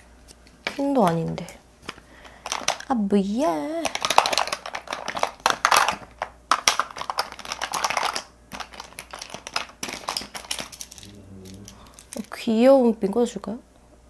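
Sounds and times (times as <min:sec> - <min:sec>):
plastic makeup cases clicking: 0:00.7 - 0:02.9, 0:03.8 - 0:11.0.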